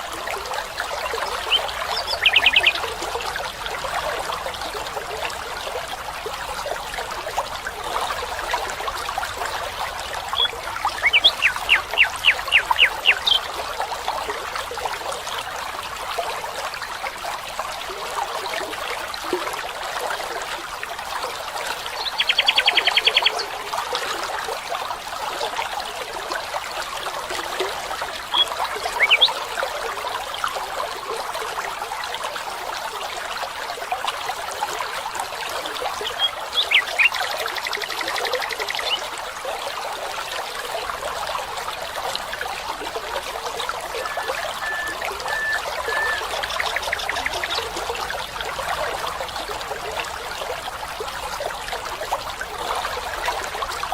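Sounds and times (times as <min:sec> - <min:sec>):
water trickling: 0:00.0 - 0:53.9
birds calling: 0:01.1 - 0:02.9, 0:10.3 - 0:13.5, 0:22.0 - 0:23.5, 0:28.3 - 0:29.4, 0:36.0 - 0:37.8, 0:43.7 - 0:47.8.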